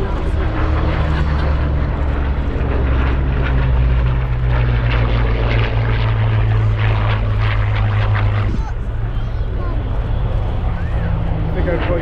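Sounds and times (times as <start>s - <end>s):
propeller aircraft engine droning: 0.0s - 12.0s.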